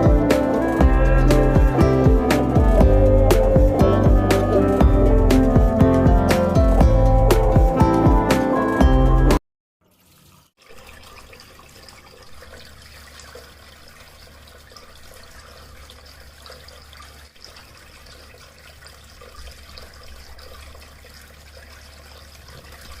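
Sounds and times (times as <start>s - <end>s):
water trickling and splashing: 9.8s - 23.0s.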